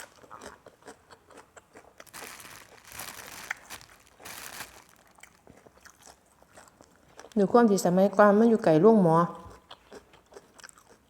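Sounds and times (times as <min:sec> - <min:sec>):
crunching and chewing: 0:00.0 - 0:07.4, 0:09.4 - 0:11.0
crinkling rustles: 0:02.0 - 0:05.6.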